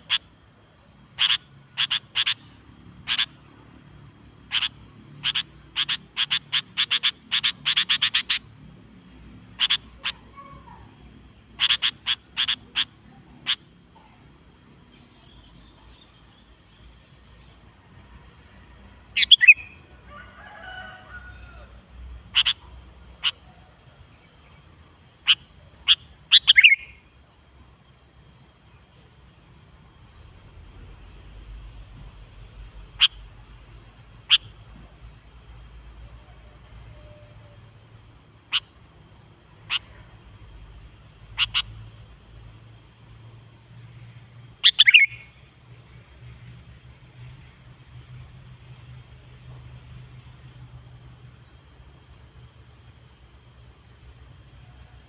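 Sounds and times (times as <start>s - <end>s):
insects chirping faintly: 0.0s - 55.0s
bird giving sharp calls: 1.2s - 2.4s, 3.0s - 3.3s, 4.5s - 8.4s, 9.6s - 10.8s, 11.6s - 13.6s, 22.4s - 22.6s, 25.2s - 26.9s, 44.6s - 45.2s.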